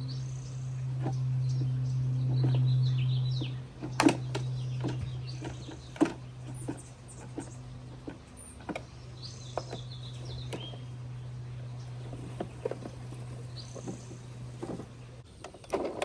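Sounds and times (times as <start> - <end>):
small birds chirping: 0.0 - 15.6
steady low hum: 0.0 - 16.0
sharp clicks and knocks: 1.0 - 10.9.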